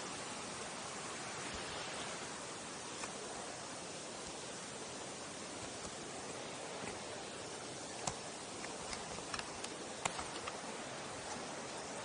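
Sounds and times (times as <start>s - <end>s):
mountain stream rushing: 0.0s - 12.0s
sharp clicks: 7.9s - 10.7s.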